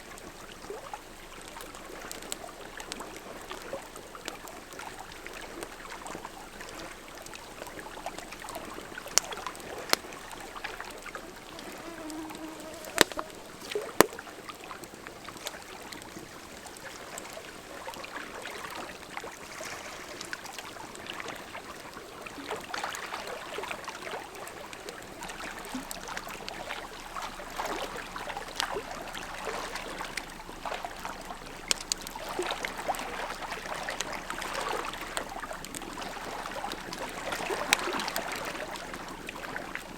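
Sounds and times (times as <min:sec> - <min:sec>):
campfire crackling and popping: 0:00.2 - 0:17.5, 0:30.0 - 0:39.4.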